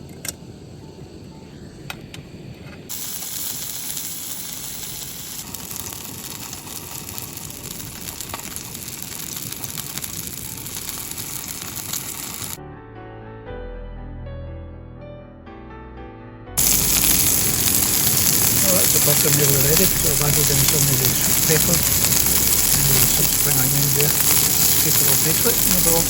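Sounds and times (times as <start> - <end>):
burger sizzling in a pan: 2.9 - 12.6, 16.6 - 26.0.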